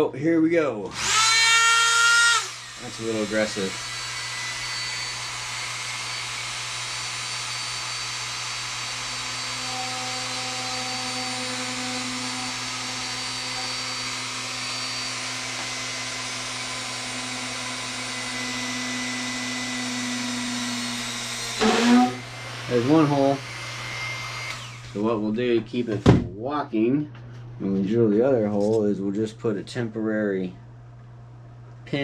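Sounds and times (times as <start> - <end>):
rotary tool drilling wood: 0.9 - 25.0.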